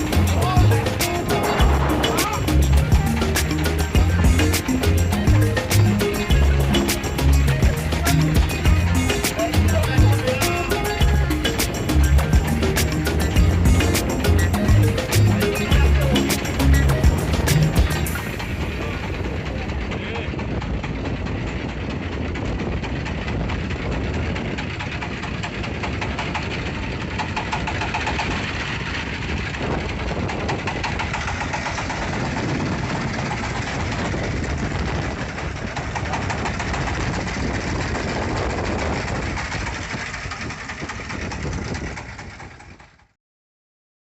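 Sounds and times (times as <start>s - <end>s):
boat engine running: 0.0s - 43.2s.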